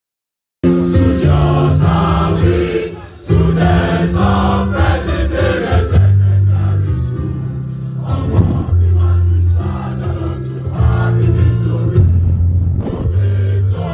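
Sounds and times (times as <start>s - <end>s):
singing sustained notes: 0.7s - 7.7s.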